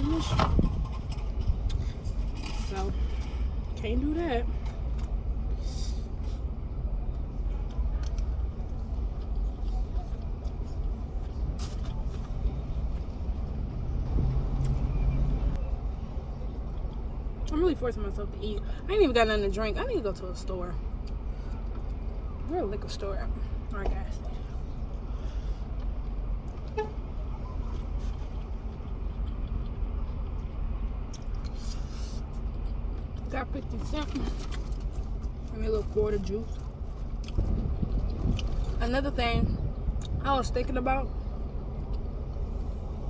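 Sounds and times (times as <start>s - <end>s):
motor vehicle rumble: 0.0s - 43.0s.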